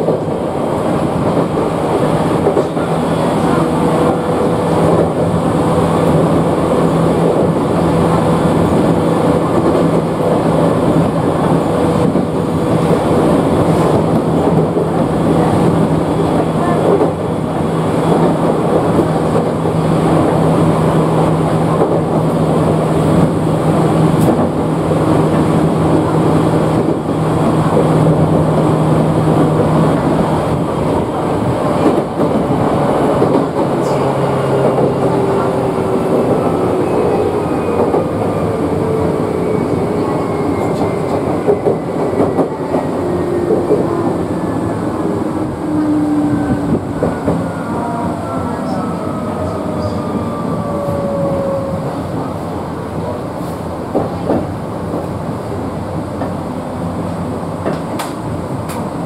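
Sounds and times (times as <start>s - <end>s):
wheel and rail rumble: 0.0s - 59.0s.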